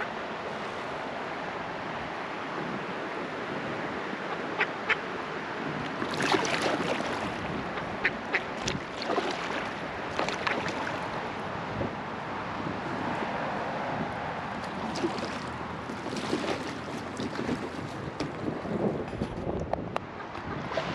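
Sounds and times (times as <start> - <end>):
river water rushing: 0.0 - 18.8
sharp water splashes: 5.8 - 11.6, 14.5 - 18.4.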